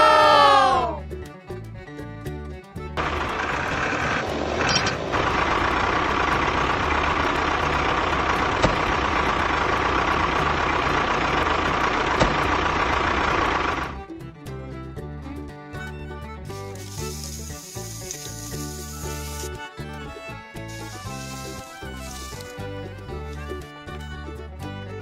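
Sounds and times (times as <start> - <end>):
noisy machine running: 3.0 - 14.0.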